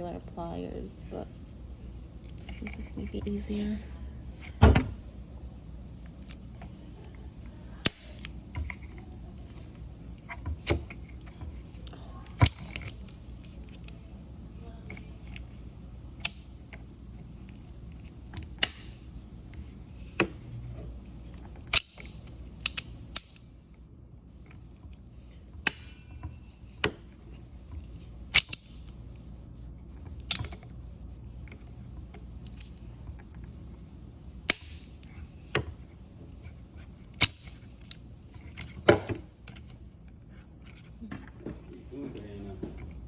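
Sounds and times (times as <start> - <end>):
steady low hum: 0.0 - 43.0
metal clicks and snaps: 21.7 - 23.5, 28.3 - 28.9.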